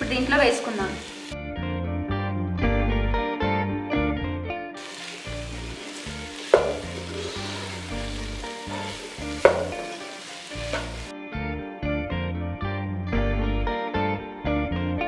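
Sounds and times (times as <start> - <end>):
vegetables sizzling in hot oil: 0.0 - 1.4, 4.8 - 11.1
spatula knocking against pan: 6.4 - 7.0, 9.3 - 10.0.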